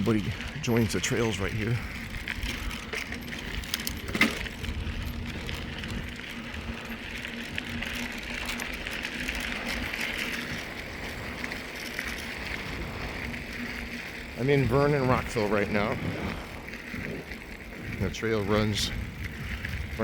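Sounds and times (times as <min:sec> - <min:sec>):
bike tyres crunching on trail: 0:00.0 - 0:20.0.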